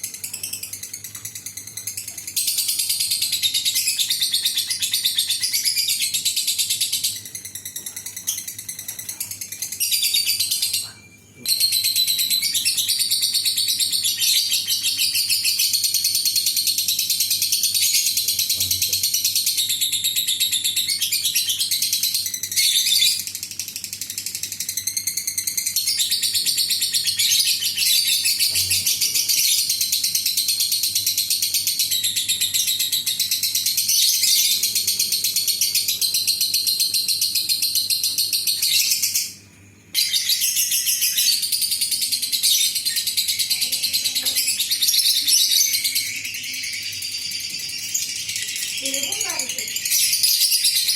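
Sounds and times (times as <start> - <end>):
lovebird chattering: 40.0 - 50.9.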